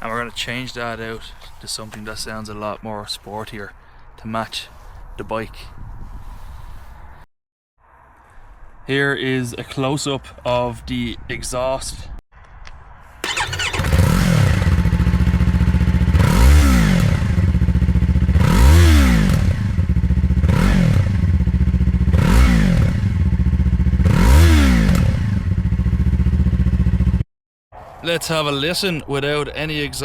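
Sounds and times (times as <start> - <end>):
motorcycle engine idling and revving: 13.2 - 27.2.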